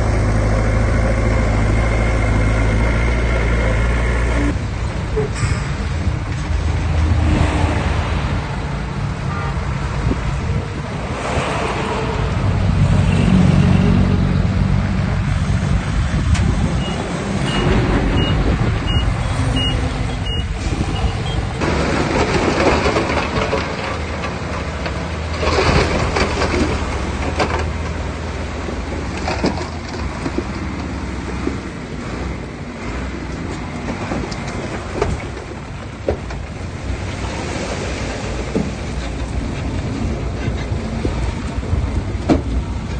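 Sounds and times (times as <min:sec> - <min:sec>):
heavy diesel machinery running: 0:00.0 - 0:42.9
reversing alarm beeps: 0:16.8 - 0:21.4.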